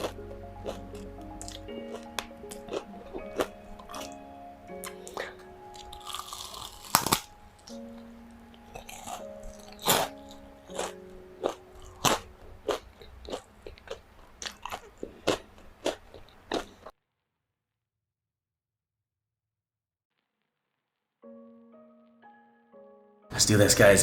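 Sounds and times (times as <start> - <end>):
crunching and chewing food: 0.0 - 8.1, 8.7 - 16.9
soft background music: 0.0 - 15.0, 21.2 - 24.0.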